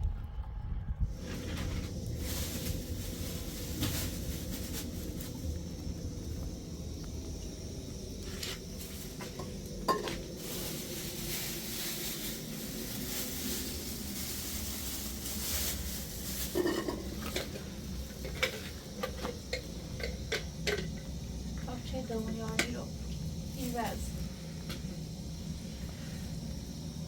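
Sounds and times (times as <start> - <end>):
low steady rumble: 0.0 - 27.0
sizzling hiss: 1.1 - 27.0
metal utensil scraping a pot: 16.4 - 17.6.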